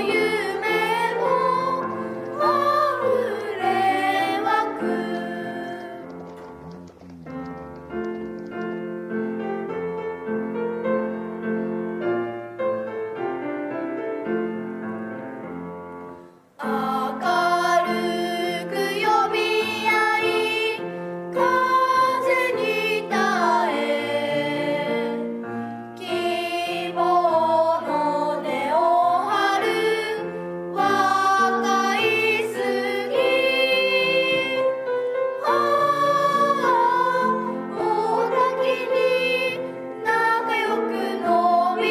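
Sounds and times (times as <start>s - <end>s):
voices singing: 0.0s - 8.1s, 16.6s - 25.4s, 26.0s - 41.9s
piano: 0.0s - 41.9s.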